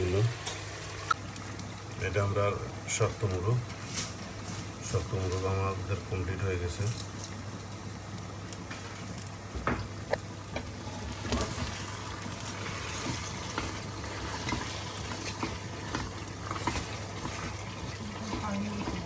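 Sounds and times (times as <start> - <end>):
curry sizzling: 0.0 - 19.0
spoon scraping a pan: 10.6 - 19.0.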